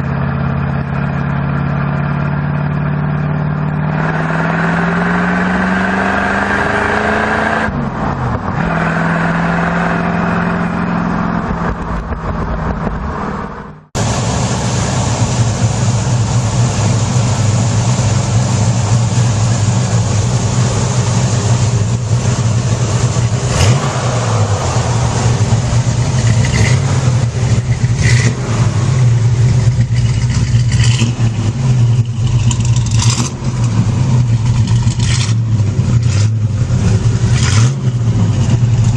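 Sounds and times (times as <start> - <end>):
engine revving: 0.0 - 38.9
engine rumbling with pops: 7.6 - 9.1, 10.6 - 38.9.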